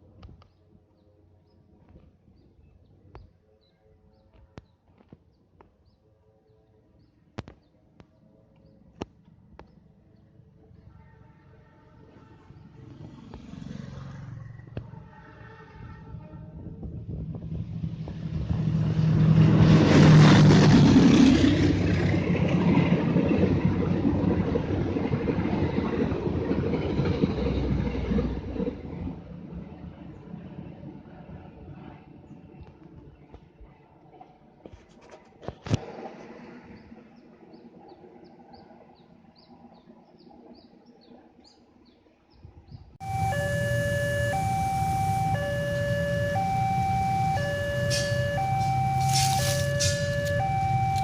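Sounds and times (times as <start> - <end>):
diesel locomotive engine rumble: 16.0 - 29.3, 43.0 - 51.0
low steady rumble: 43.0 - 51.0.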